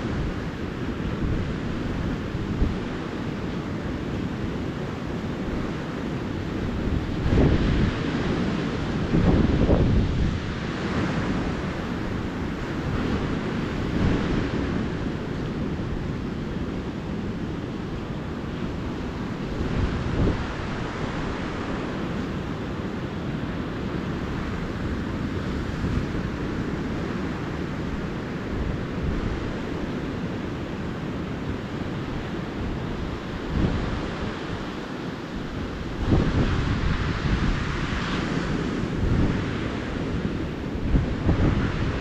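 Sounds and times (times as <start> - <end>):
ocean surf washing onto beach: 0.0 - 42.0
wind rumble on microphone: 0.0 - 42.0.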